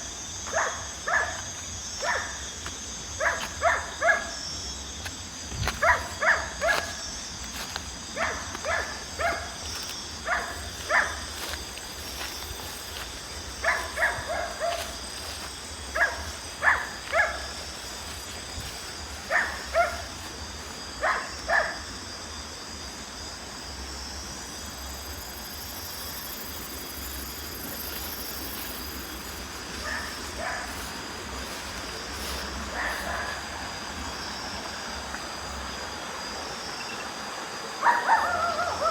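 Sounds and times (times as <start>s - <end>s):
insect trilling: 0.0s - 37.2s
dog barking: 0.5s - 1.4s, 2.0s - 2.4s, 3.2s - 4.4s, 5.8s - 7.0s, 8.2s - 9.6s, 10.2s - 11.3s, 13.6s - 15.0s, 15.9s - 17.6s, 19.2s - 20.2s, 21.0s - 21.8s, 29.8s - 31.0s, 32.6s - 33.4s, 37.8s - 38.9s.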